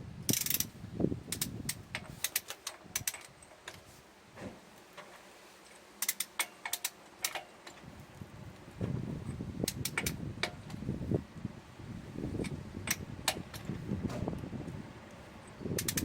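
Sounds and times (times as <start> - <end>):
sharp metallic clicks: 0.3 - 0.7, 1.3 - 3.8, 5.7 - 7.8, 9.6 - 10.8, 12.4 - 14.2, 15.5 - 16.0.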